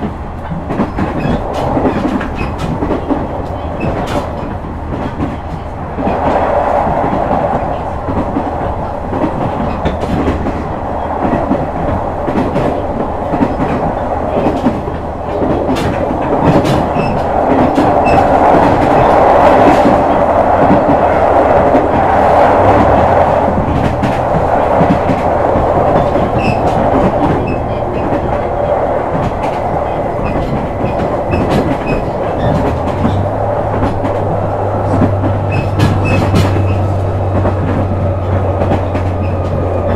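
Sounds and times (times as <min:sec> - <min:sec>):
wheels rumbling on track: 0:00.0 - 0:39.9
wheels clicking over rail joints: 0:09.1 - 0:39.9.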